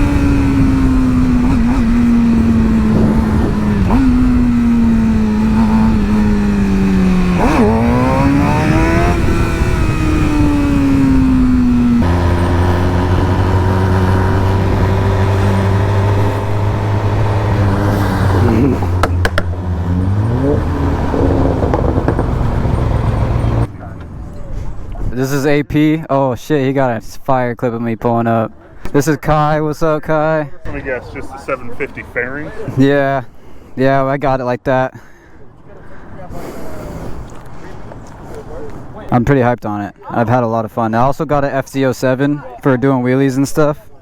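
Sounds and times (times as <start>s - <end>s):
motorcycle engine: 0.0s - 25.0s.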